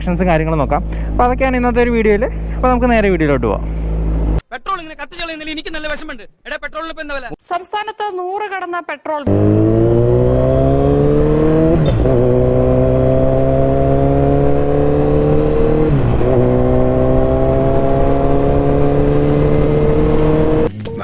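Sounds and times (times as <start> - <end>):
motorcycle engine accelerating: 0.0 - 4.4, 9.3 - 20.7.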